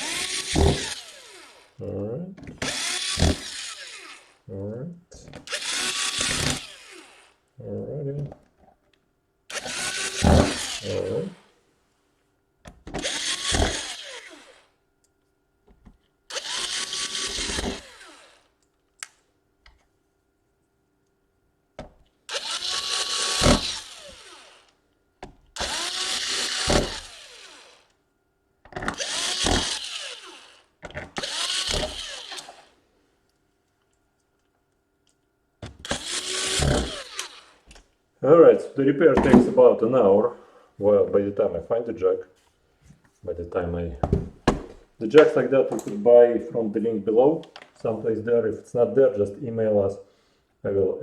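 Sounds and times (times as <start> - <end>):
electric screwdriver motor whirring: 0.0 - 1.8, 2.4 - 4.4, 5.3 - 7.4, 9.5 - 11.5, 12.7 - 14.8, 16.3 - 19.2, 22.3 - 24.8, 25.6 - 28.0, 28.7 - 32.8, 35.6 - 37.8.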